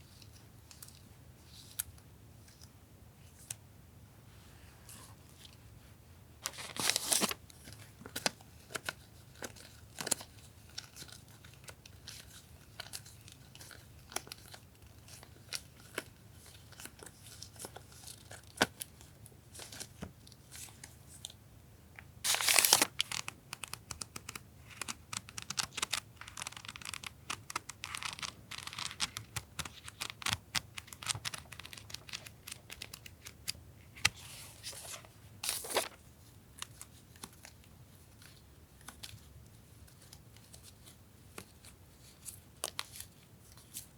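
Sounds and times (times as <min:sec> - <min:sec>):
paper ripping: 0:06.4 - 0:07.4, 0:22.3 - 0:23.2, 0:34.7 - 0:36.0
packaging rustling and crinkling: 0:06.4 - 0:12.2, 0:22.2 - 0:23.4, 0:34.0 - 0:36.0.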